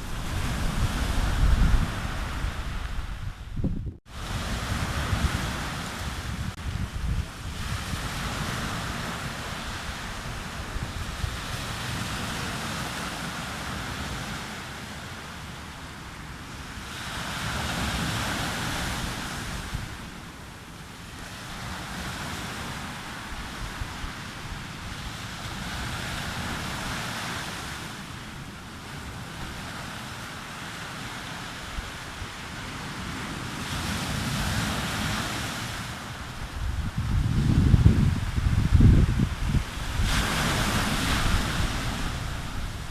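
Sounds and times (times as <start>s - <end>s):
sea waves breaking on beach: 0.0s - 3.5s, 4.1s - 42.9s
wind rumbling on microphone: 0.0s - 14.4s, 31.3s - 42.9s.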